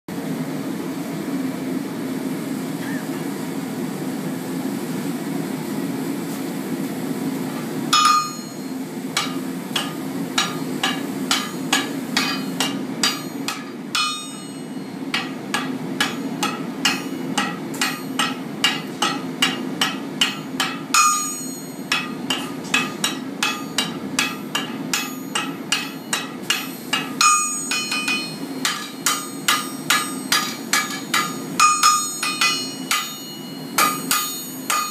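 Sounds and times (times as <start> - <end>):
hammer blows ringing on anvil: 7.9 - 34.9.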